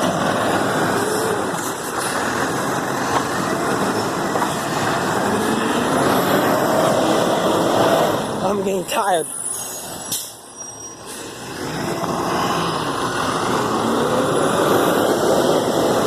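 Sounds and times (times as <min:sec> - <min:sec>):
garbage truck running: 0:00.0 - 0:08.6.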